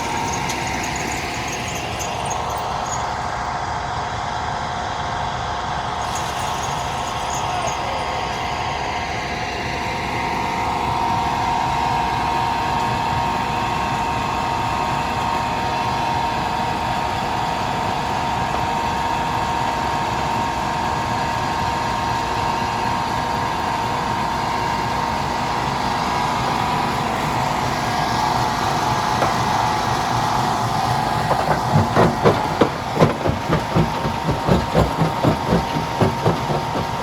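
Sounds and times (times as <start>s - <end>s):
constant machine whine: 0.0s - 37.0s
heavy machinery din: 28.7s - 37.0s.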